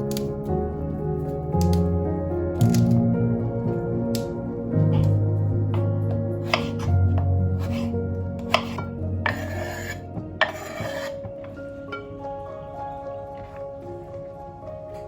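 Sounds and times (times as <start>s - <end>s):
quiet background music: 0.0s - 15.0s
short rasping scrapes: 7.6s - 11.2s.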